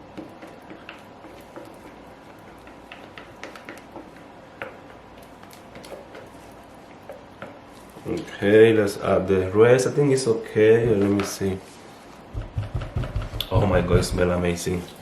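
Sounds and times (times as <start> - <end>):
utensils clicking and tapping: 0.0 - 8.3, 10.8 - 11.5.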